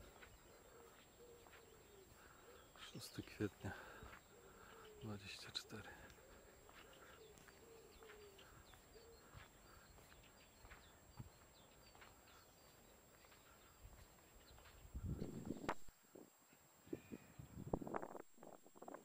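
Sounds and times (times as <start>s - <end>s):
pigeon cooing: 0.0s - 2.8s, 6.0s - 9.6s
small birds chirping: 0.0s - 19.0s.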